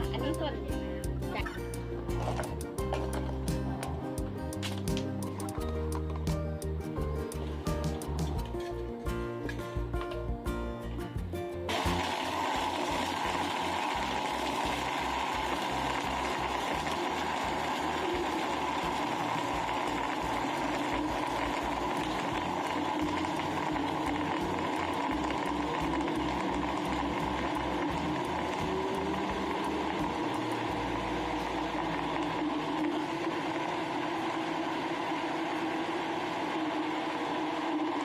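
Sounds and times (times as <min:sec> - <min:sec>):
music: 0:00.0 - 0:36.3
electric blender crushing ice: 0:02.1 - 0:04.0, 0:11.7 - 0:38.0.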